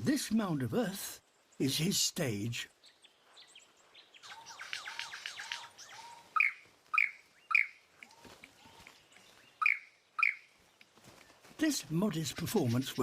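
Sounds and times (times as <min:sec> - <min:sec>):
lyrebird singing: 0:00.0 - 0:13.0
loud sharp bird calls: 0:02.6 - 0:13.0.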